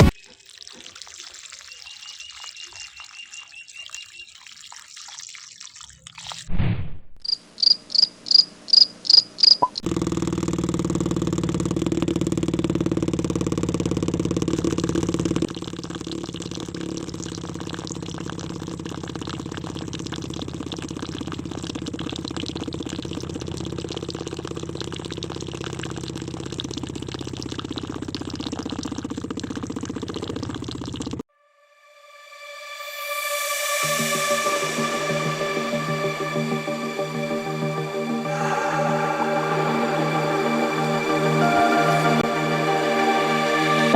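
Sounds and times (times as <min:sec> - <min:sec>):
small motor buzzing: 0:09.0 - 0:15.5
falling electronic sweep: 0:32.8 - 0:43.9.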